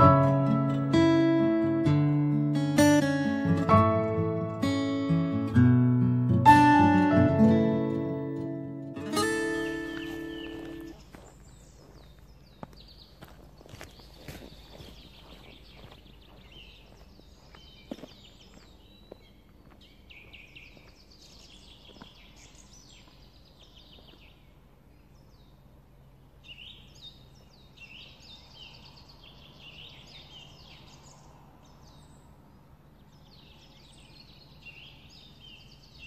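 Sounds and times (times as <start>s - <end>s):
songbirds chirping and singing: 6.9s - 36.0s
footsteps on gravel: 9.1s - 24.4s.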